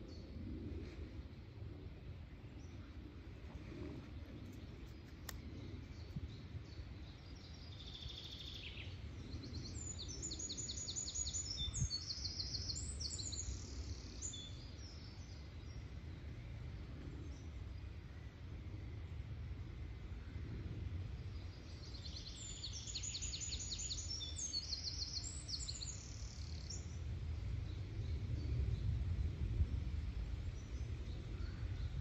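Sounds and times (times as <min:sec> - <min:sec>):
low steady background rumble: 0:00.0 - 0:32.0.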